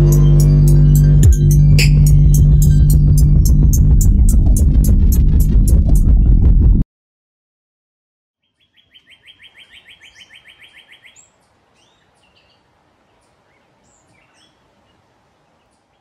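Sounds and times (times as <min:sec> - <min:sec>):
faint outdoor hiss: 0:08.4 - 0:16.0.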